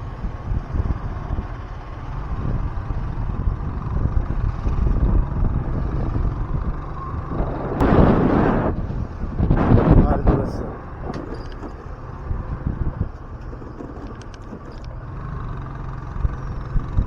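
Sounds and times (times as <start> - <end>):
road and engine rumble: 0.0 - 17.0
loud rushing noise: 7.2 - 10.4.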